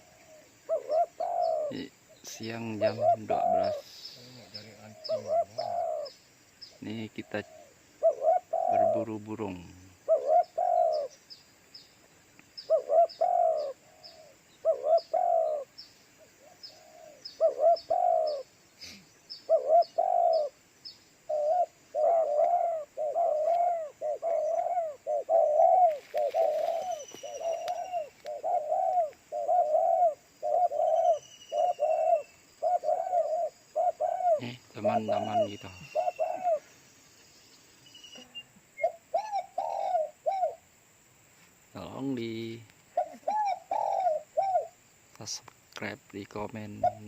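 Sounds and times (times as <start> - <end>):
dove cooing: 0.0 - 6.2, 6.8 - 11.2, 12.6 - 20.6, 21.2 - 36.8, 38.1 - 40.7, 42.0 - 44.8, 46.6 - 47.0
faint high bird chirps: 0.0 - 40.6, 41.8 - 47.0.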